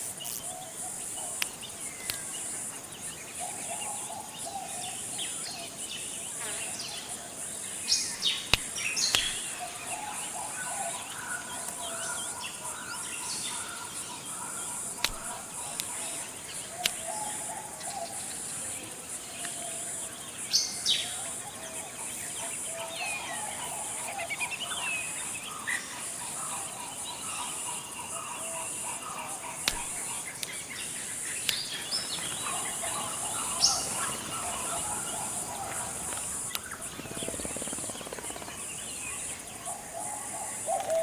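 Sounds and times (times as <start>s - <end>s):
high-pitched insect drone: 0.0s - 1.4s, 23.0s - 41.0s
birds calling and chirping: 0.2s - 41.0s
sharp clicks: 8.5s - 9.5s, 15.0s - 16.0s, 29.6s - 30.6s.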